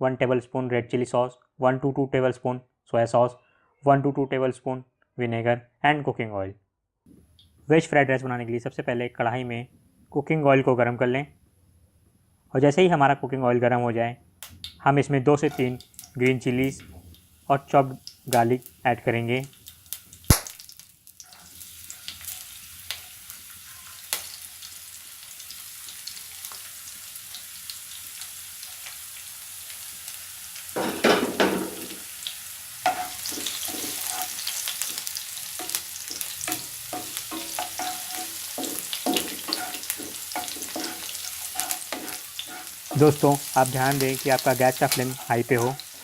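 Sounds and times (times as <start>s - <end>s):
spatula scraping a pan: 15.4s - 15.8s, 32.8s - 46.0s
chillies and garlic sizzling in oil: 15.4s - 46.0s.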